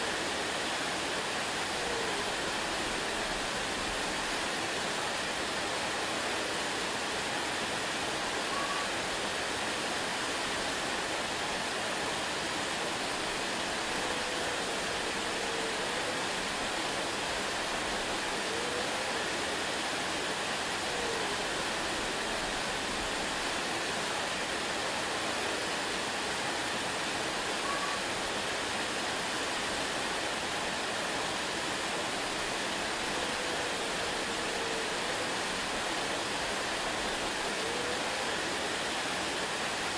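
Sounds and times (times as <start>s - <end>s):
waterfall rushing: 0.0s - 39.9s
faint whistled notes: 8.5s - 8.9s.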